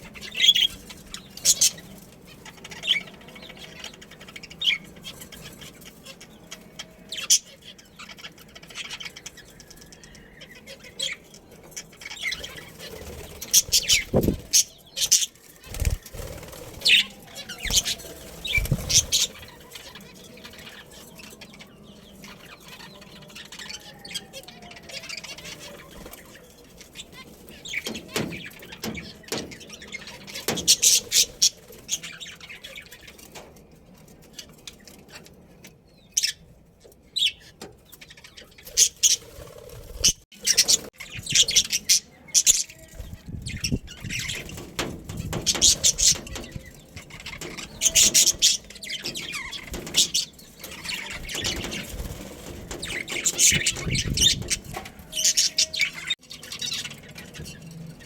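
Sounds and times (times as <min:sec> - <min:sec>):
budgerigars chirping: 0:00.0 - 0:20.8.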